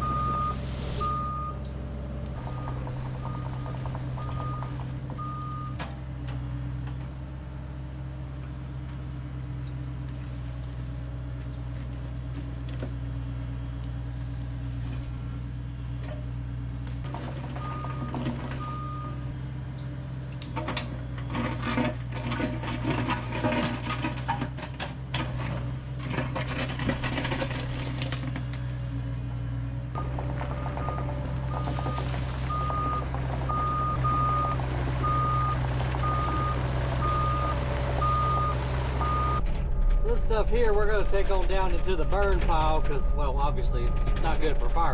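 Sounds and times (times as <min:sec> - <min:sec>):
backup alarm beeps: 0:00.0 - 0:01.6, 0:02.5 - 0:05.8, 0:17.6 - 0:19.3, 0:30.0 - 0:39.4, 0:41.7 - 0:44.6
diesel engine running: 0:00.0 - 0:44.9
clanking and rattling: 0:02.3 - 0:07.2, 0:15.9 - 0:19.4, 0:20.3 - 0:28.7, 0:29.9 - 0:44.9.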